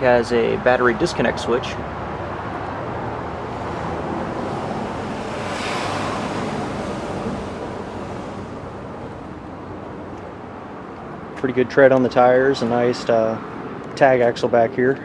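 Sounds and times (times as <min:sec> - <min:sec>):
steady outdoor rushing noise: 0:00.0 - 0:15.0.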